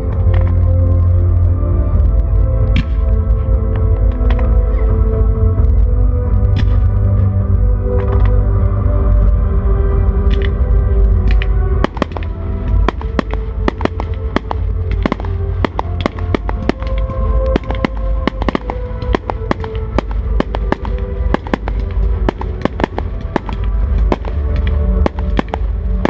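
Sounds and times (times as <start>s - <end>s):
music playing: 0.0s - 26.0s
fireworks bangs: 11.8s - 26.0s.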